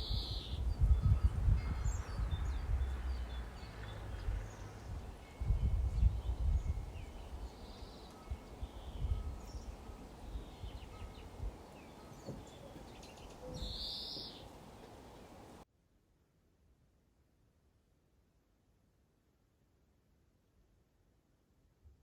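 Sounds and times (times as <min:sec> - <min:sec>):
birds chirping: 0:00.0 - 0:15.6.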